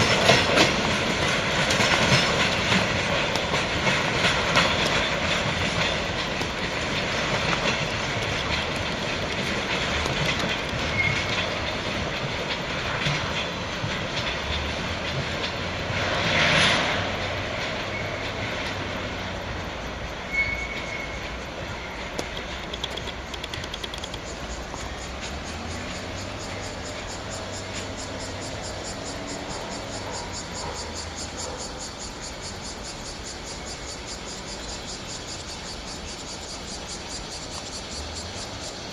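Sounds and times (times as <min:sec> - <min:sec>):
train wagons clattering: 0:00.0 - 0:38.9
train wheel squeals: 0:00.0 - 0:38.9.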